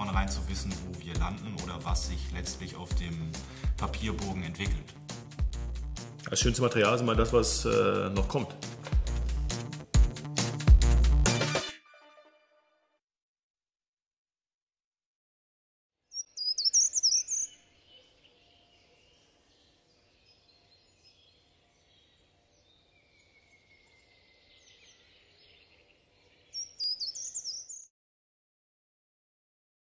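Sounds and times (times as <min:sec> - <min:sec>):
faint bird calls: 0:16.1 - 0:20.1
songbird rapid high chirps: 0:16.1 - 0:27.9.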